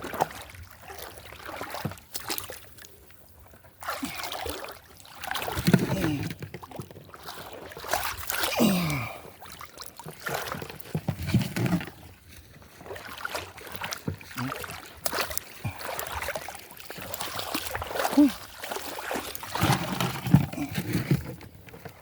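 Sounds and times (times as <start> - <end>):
water splashing and sloshing: 0.0 - 22.0.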